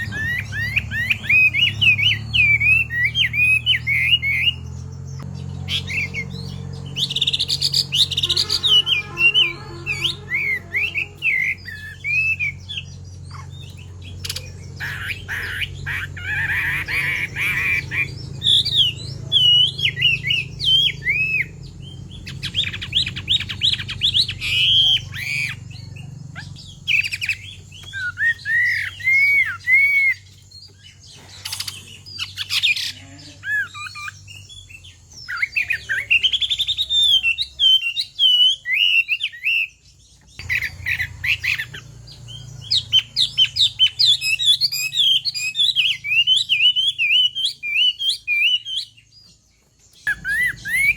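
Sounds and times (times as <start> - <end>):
harsh rasping bird notes: 0.0 - 39.0
bird whistling song: 0.0 - 50.9.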